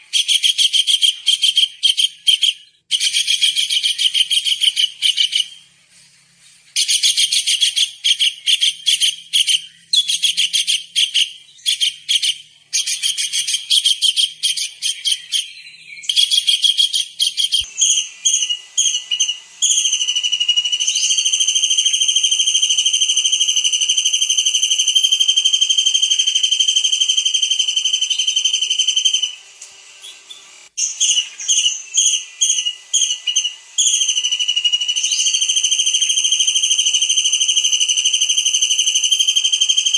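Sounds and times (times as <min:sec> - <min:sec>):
kingfisher high-pitched trills: 0:12.8 - 0:29.4.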